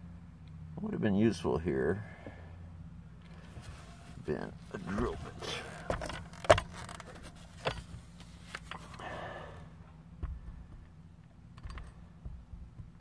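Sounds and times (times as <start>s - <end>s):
tools knocking and tapping: 11.6s - 13.0s.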